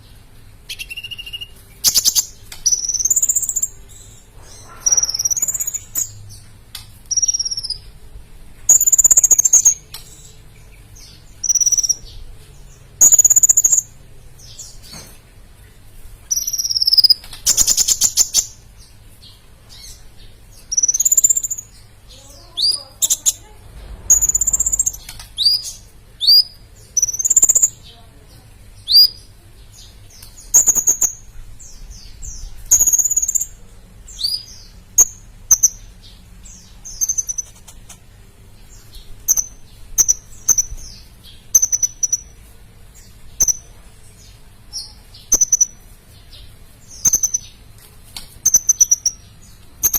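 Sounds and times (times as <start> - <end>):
bird singing high thin phrases: 0.7 - 6.5, 7.1 - 7.9, 16.3 - 18.6, 20.6 - 33.6, 48.4 - 49.9.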